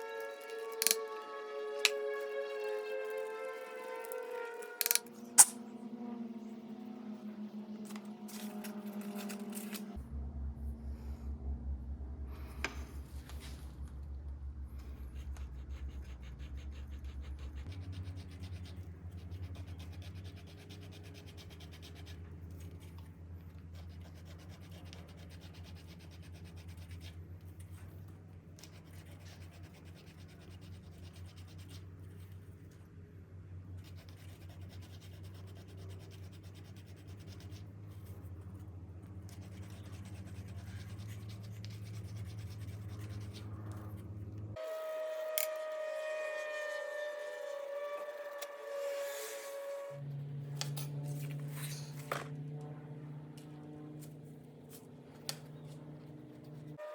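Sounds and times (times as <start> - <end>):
steady low hum: 0.0 - 45.1, 46.8 - 56.9
scratching on metal awl: 4.6 - 5.6.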